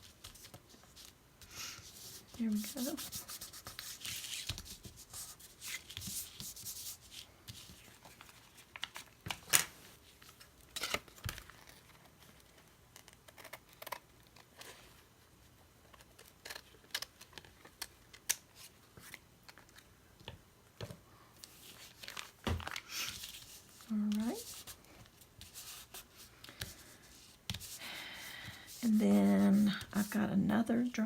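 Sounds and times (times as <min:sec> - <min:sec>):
paper rubbing: 0:01.8 - 0:07.9, 0:25.4 - 0:30.2.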